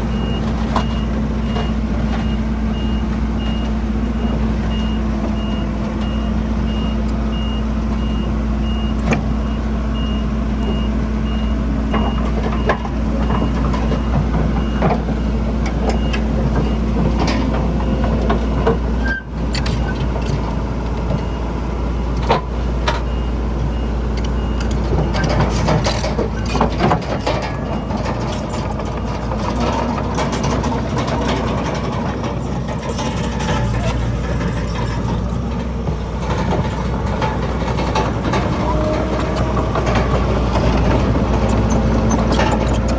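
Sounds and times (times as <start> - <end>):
diesel machinery running: 0.0 - 42.9
rock and soil clatter: 24.1 - 42.9.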